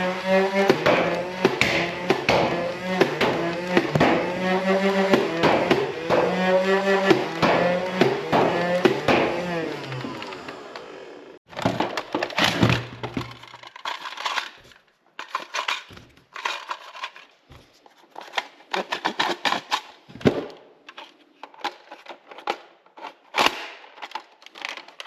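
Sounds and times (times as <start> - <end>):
toy dart blasters firing: 0.6 - 6.4
heavy knocks: 0.6 - 9.6.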